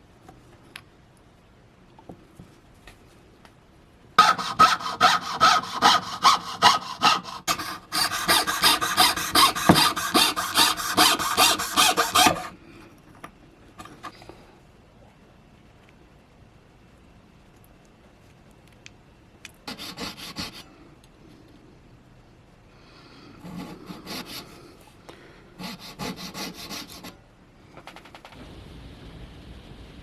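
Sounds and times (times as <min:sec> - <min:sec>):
hand tool back-and-forth strokes: 0:04.2 - 0:12.5, 0:19.7 - 0:20.6, 0:23.4 - 0:24.6, 0:25.6 - 0:27.2.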